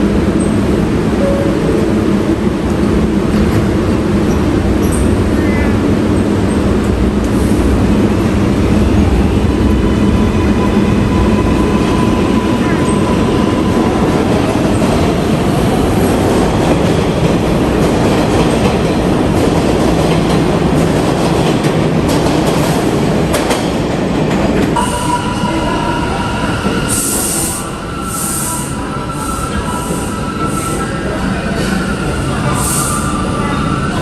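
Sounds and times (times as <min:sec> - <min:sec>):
subway train wheels rumbling: 0:00.0 - 0:34.0.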